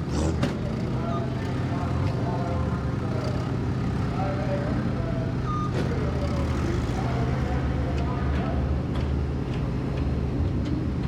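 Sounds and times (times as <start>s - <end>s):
car engines droning: 0.0s - 11.0s.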